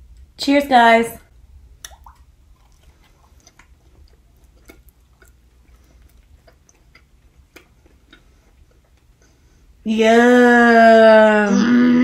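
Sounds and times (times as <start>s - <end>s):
people chewing food: 1.7s - 9.8s.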